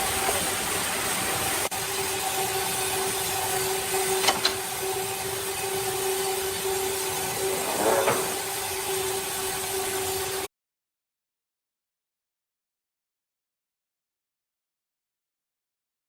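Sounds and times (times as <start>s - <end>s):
sawmill machinery humming: 0.0s - 10.5s.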